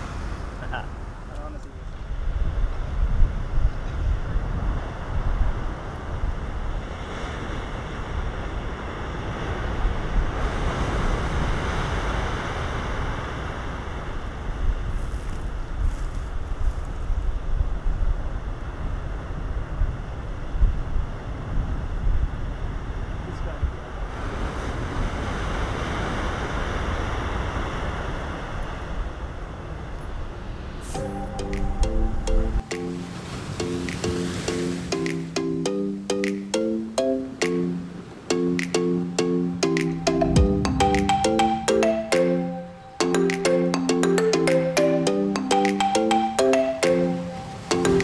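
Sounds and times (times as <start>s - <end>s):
ocean surf breaking on beach: 0.0s - 15.8s, 17.8s - 35.6s, 46.8s - 48.0s
wind buffeting microphone: 1.8s - 30.9s.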